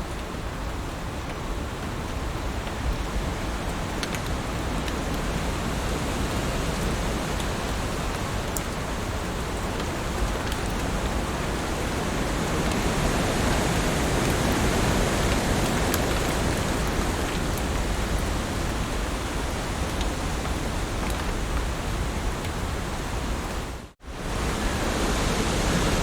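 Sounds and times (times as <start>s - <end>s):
raindrop ticks: 2.6s - 5.4s, 6.7s - 11.3s, 15.2s - 21.8s
heavy rain hissing: 3.2s - 26.0s.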